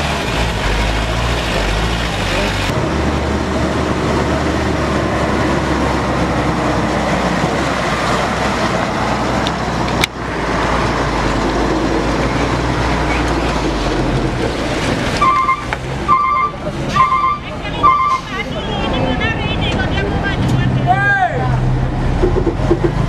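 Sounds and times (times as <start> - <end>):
truck engine running: 0.0 - 20.9
short high beep: 15.2 - 18.3.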